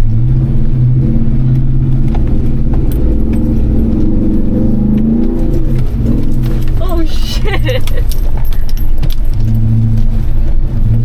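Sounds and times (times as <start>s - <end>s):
engine running under load: 0.0s - 11.0s
light rattling clicks: 2.0s - 10.6s.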